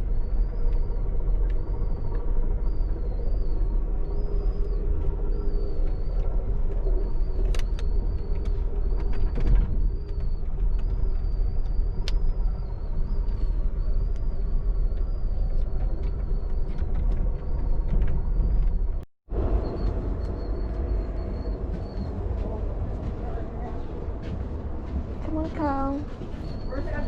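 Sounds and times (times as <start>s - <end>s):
faint wavering high whine: 0.0s - 16.8s
train car rumbling: 0.0s - 27.0s.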